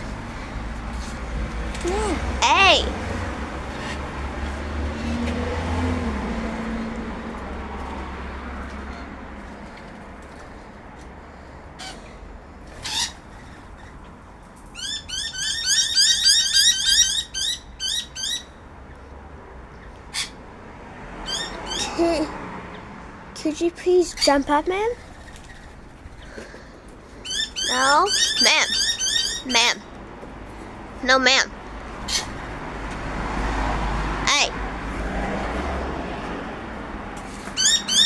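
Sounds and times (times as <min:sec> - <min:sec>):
birds chirping: 0:24.0 - 0:32.5, 0:34.3 - 0:34.5.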